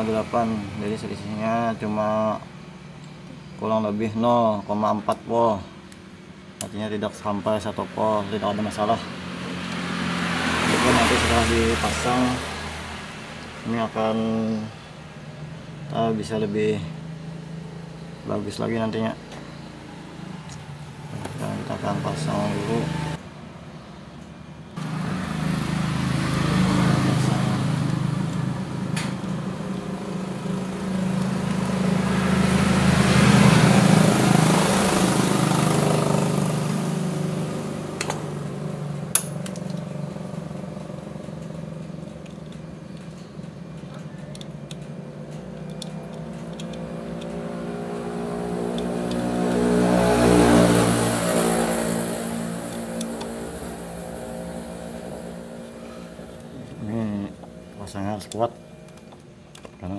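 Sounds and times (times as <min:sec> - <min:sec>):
vehicle engine: 0:05.3 - 0:59.9
sharp clicks: 0:42.0 - 0:47.4.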